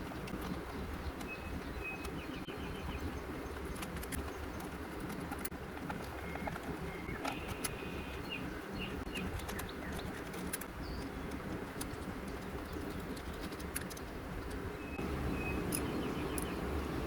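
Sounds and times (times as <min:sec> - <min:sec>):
birds chirping: 0:00.0 - 0:17.0
steady low hum: 0:00.0 - 0:17.0
small clicks: 0:03.5 - 0:07.8, 0:09.1 - 0:14.7.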